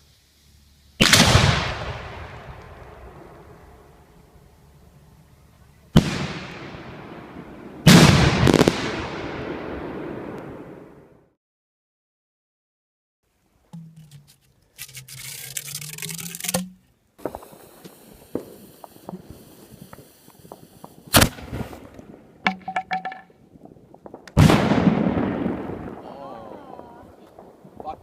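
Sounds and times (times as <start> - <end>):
fireworks hissing: 0.0 - 1.2, 14.1 - 22.2
fireworks crackling and popping: 0.0 - 4.5, 5.9 - 10.7, 13.8 - 28.0
heavy explosion rumbling: 23.9 - 28.0.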